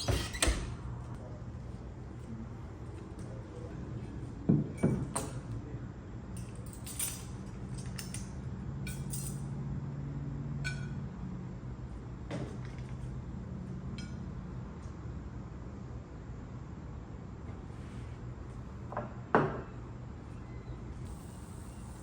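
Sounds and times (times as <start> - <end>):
steady low hum: 20.0 - 22.0.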